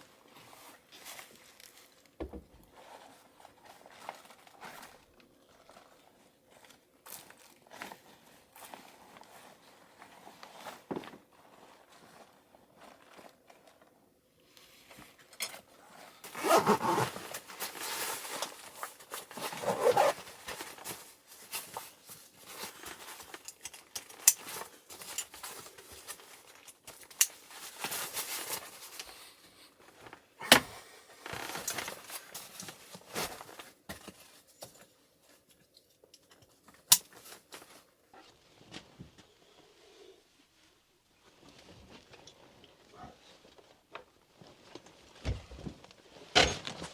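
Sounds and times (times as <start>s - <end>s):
rustling and scraping: 14.8s - 30.4s, 31.1s - 35.5s
clicks and knocks of handling: 33.5s - 37.7s.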